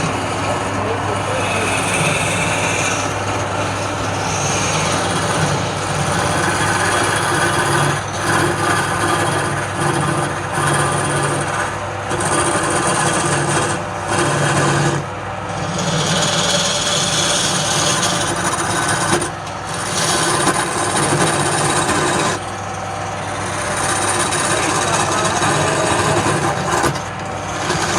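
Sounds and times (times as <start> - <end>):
turning tool scraping wood: 0.0 - 27.9
wood lathe motor hum: 0.0 - 27.9.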